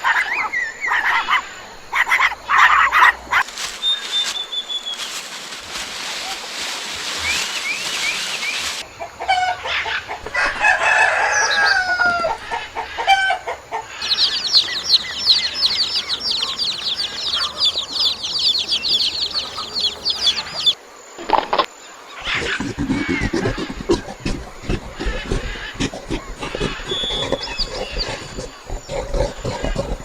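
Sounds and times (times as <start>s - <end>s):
chickens clucking: 14.0s - 20.8s, 23.0s - 30.0s
rapid high chirps: 14.0s - 20.8s.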